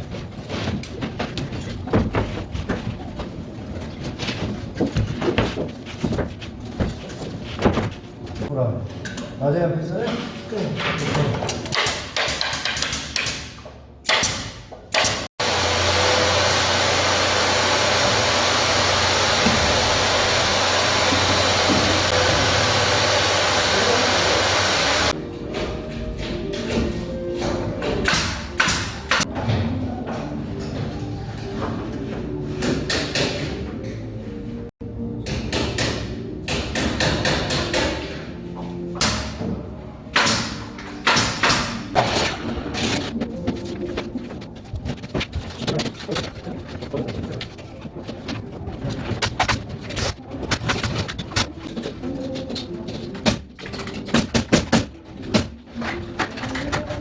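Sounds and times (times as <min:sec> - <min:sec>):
construction knocks and clatter: 0:00.0 - 0:09.4, 0:40.2 - 0:57.0
machine hissing and humming: 0:15.4 - 0:25.2.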